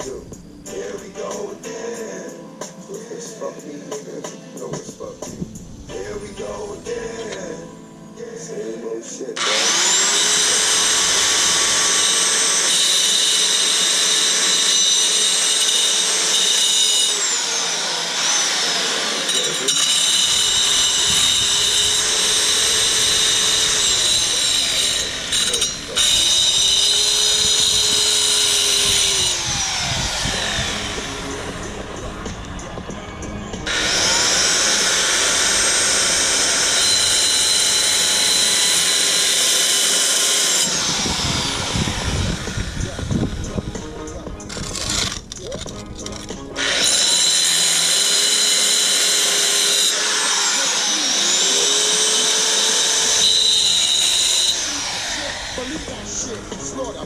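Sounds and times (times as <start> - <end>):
power tool whining: 9.4 - 57.0.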